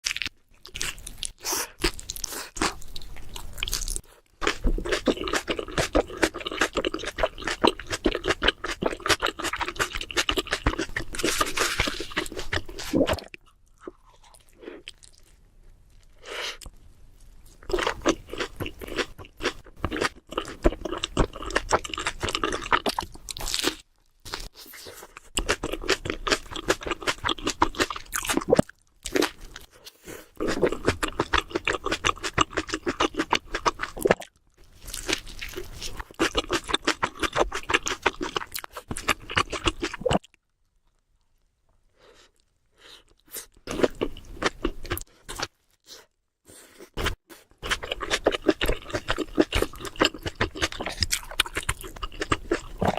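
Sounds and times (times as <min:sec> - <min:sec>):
chewing and crunching sandwich: 0:00.0 - 0:52.9.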